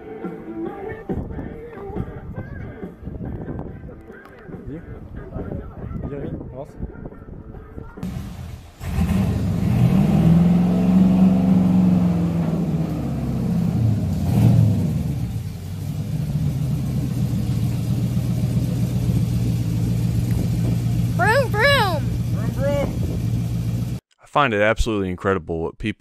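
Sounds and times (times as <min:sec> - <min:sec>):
engine revving and idling: 0:08.0 - 0:24.0.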